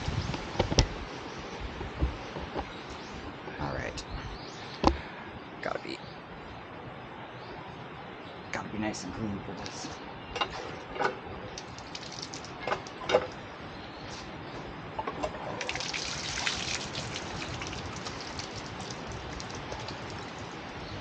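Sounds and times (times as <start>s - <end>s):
water splashing in basin: 11.6s - 12.7s, 15.6s - 20.5s.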